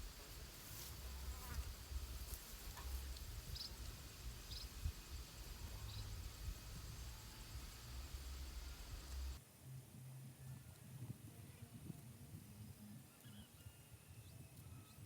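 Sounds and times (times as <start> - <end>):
high insect chirps: 0.0 - 9.4
low outdoor rumble: 0.0 - 9.4.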